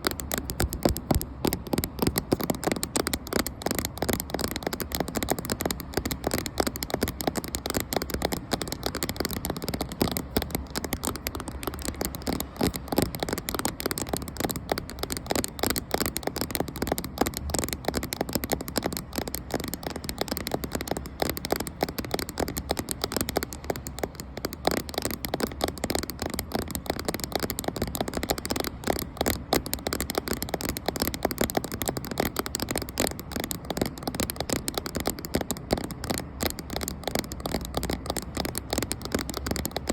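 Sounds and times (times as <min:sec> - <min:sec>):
fast tapping on camera: 0:00.0 - 0:39.9.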